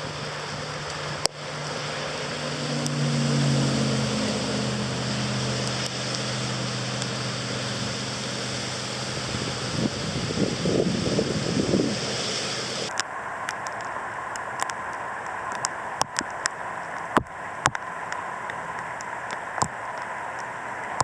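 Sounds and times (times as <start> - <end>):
vehicle passing: 0.0 - 12.9
steady rain hiss: 0.0 - 21.0.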